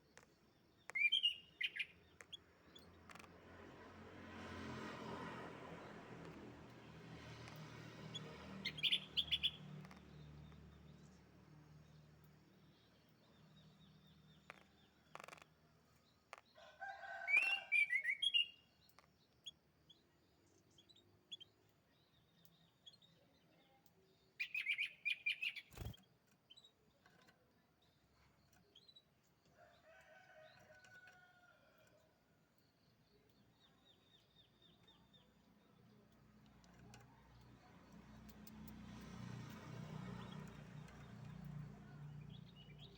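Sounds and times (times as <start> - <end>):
canary chirping trills: 0.0 - 3.4, 7.4 - 16.5, 17.1 - 31.0.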